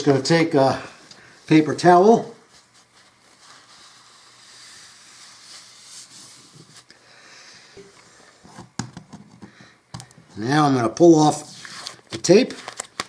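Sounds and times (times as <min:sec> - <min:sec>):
paper towel scrubbing floor: 0:01.5 - 0:06.9.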